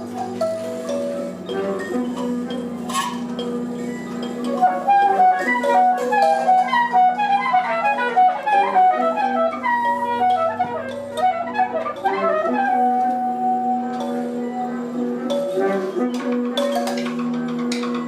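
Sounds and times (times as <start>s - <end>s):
wind instrument rapid runs: 4.6s - 14.0s.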